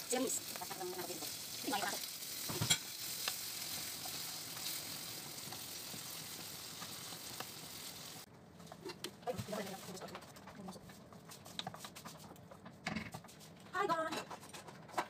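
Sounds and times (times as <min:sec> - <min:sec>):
food sizzling in oil: 0:00.0 - 0:08.3
wooden spoon stirring in wok: 0:00.0 - 0:13.6.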